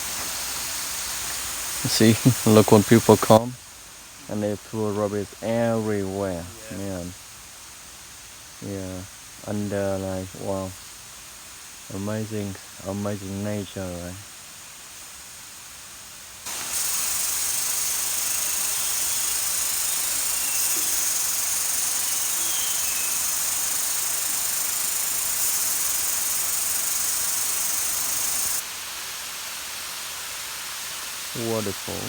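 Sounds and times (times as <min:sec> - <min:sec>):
waterfall rushing: 0:00.0 - 0:03.4, 0:16.5 - 0:32.0.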